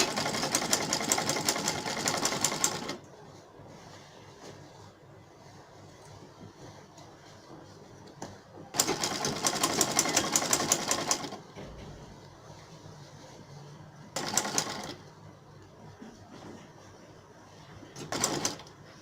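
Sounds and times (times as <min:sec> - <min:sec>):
sewing machine stitching: 0:00.0 - 0:03.0, 0:08.7 - 0:11.8, 0:14.2 - 0:15.1, 0:18.0 - 0:18.7.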